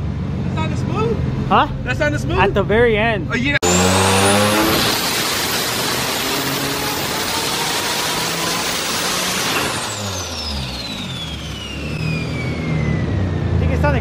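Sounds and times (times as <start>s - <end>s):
high turbo whine: 3.4s - 14.0s
car engine at full throttle: 3.6s - 14.0s.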